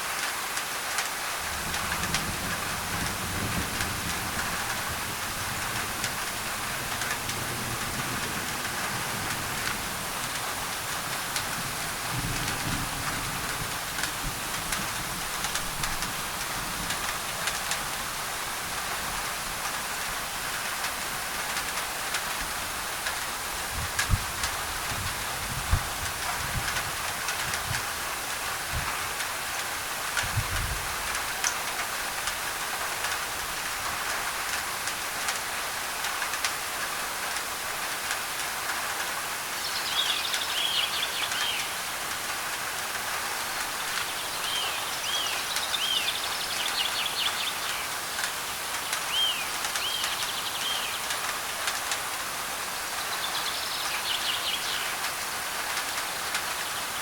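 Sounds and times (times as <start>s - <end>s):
rain on a tin roof: 0.0s - 57.0s
bird chirping: 44.0s - 48.0s, 48.8s - 51.1s.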